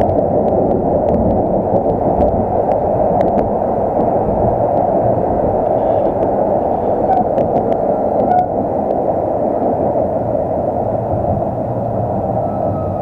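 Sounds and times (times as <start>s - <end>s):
faint clicks: 0.0s - 9.0s
tram running: 0.0s - 13.0s.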